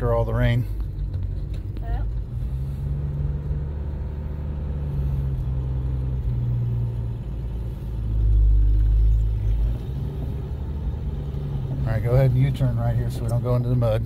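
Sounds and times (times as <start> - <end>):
car engine running inside cabin: 0.0 - 14.0.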